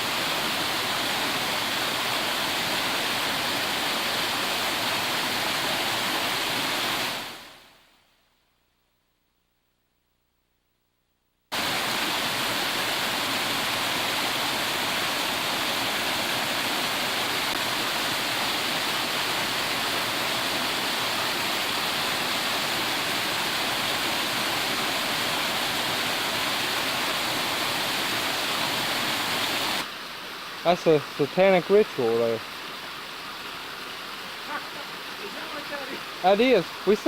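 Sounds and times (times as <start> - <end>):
waterfall roaring: 0.0 - 7.6, 11.5 - 37.0.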